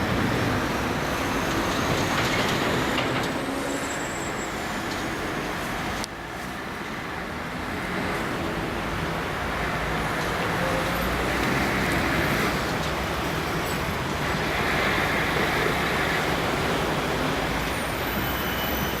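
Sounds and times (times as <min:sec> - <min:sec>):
passenger train rolling past: 0:00.0 - 0:06.1, 0:07.0 - 0:19.0.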